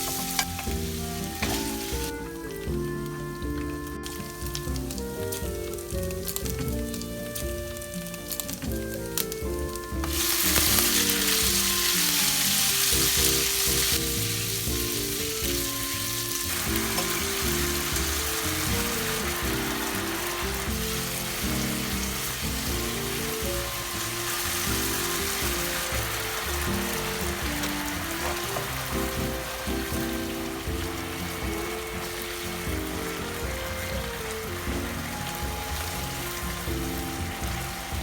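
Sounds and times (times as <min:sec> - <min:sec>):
food sizzling in a frying pan: 0:00.0 - 0:03.2, 0:03.9 - 0:38.0
background music: 0:00.0 - 0:38.0.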